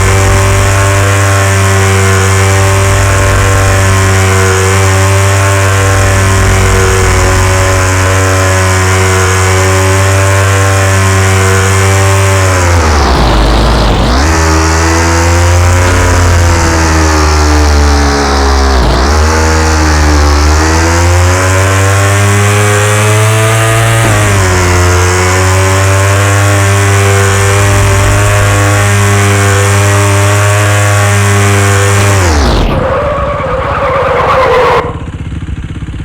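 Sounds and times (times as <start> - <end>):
motorcycle engine at high revs: 0.0 - 36.0.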